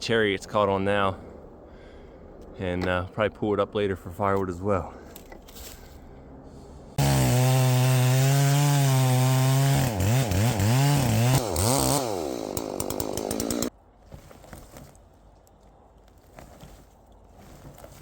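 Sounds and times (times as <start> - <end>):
chainsaw cutting log: 7.0 - 13.7.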